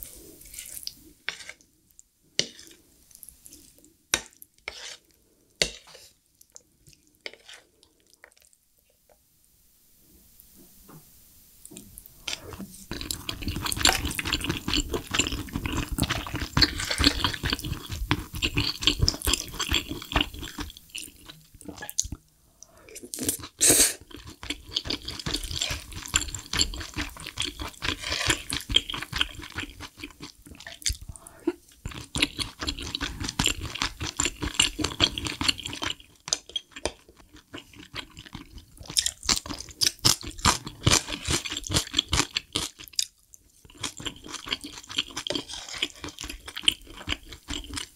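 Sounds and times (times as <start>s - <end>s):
wet chewing and mouth sounds: 11.7s - 22.2s, 22.9s - 47.9s.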